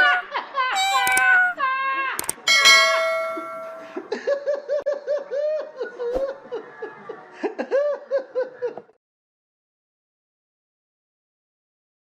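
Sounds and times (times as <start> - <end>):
high-pitched laugh-like calls: 0.0 - 1.6.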